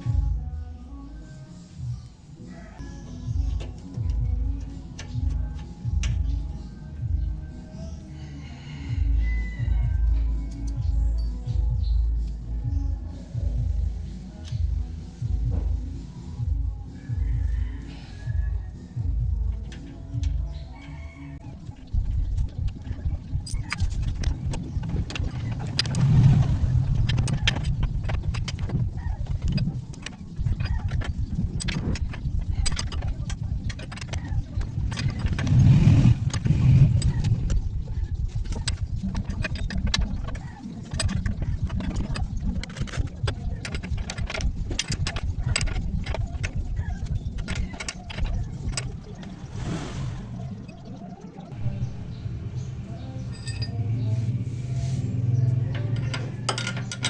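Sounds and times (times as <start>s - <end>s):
metallic clicks and clanks: 3.4s - 7.1s, 9.8s - 11.7s, 17.4s - 49.5s, 55.5s - 57.0s
metallic clicks and clinks: 10.0s - 11.6s, 53.2s - 54.0s, 55.5s - 57.0s
low rumble: 21.4s - 57.0s.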